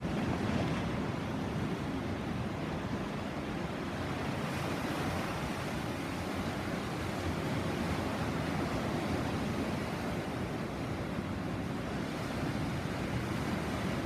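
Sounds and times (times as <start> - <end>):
sea waves rushing: 0.0 - 14.0.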